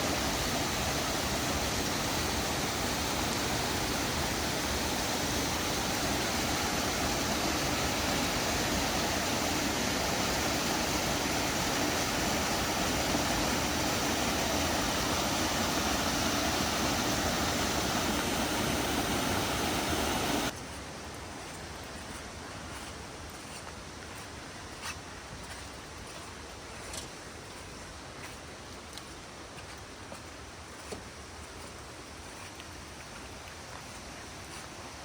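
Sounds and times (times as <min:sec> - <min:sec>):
flowing water rushing: 0:00.0 - 0:20.6.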